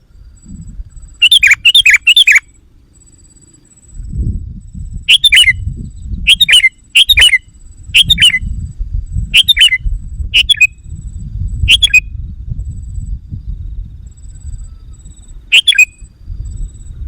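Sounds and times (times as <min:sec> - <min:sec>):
bird chattering calls: 0:01.1 - 0:02.5, 0:05.1 - 0:05.6, 0:06.3 - 0:08.5, 0:09.3 - 0:10.7, 0:11.7 - 0:12.0, 0:14.8 - 0:15.9.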